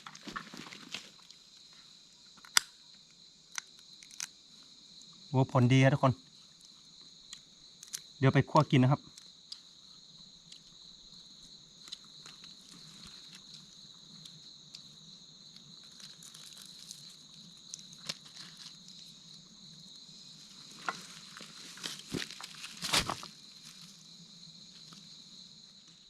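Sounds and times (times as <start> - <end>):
small crackles and snaps: 0.0 - 4.4, 6.6 - 8.1, 9.0 - 9.7, 11.8 - 14.9, 15.5 - 19.1
insects trilling: 0.0 - 26.0.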